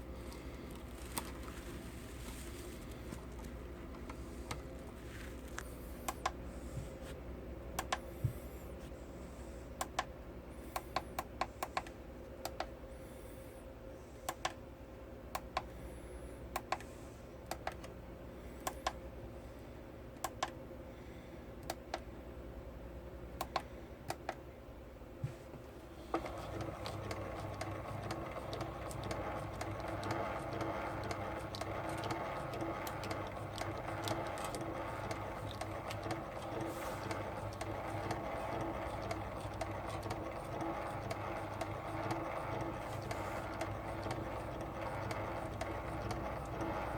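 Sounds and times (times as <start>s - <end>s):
sharp clicks: 7.8s - 8.0s
film projector clattering: 26.1s - 46.9s.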